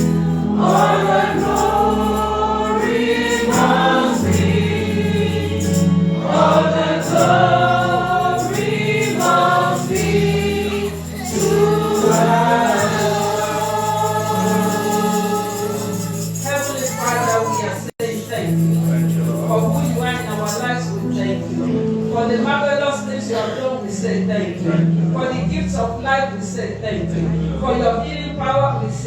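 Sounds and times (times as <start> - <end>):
choir singing gospel song: 0.0 - 17.9
keyboard chords and bass: 0.0 - 29.0.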